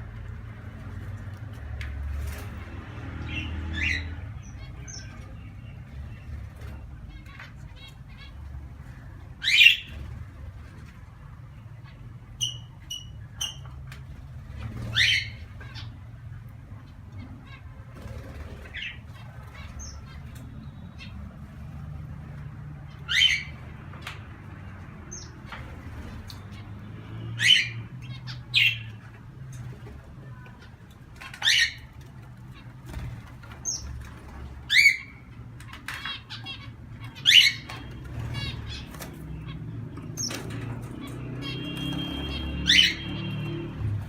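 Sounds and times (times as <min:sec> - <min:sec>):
birds chirping and trilling: 0:00.0 - 0:44.0
birds squawking: 0:02.3 - 0:10.5, 0:14.5 - 0:21.9, 0:22.7 - 0:44.0.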